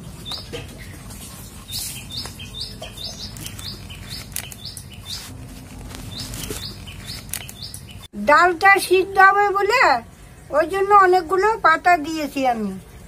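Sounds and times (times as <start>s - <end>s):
leaves rustling and crinkling: 0.0s - 8.1s
small bird chirping: 0.2s - 1.0s, 1.6s - 8.1s.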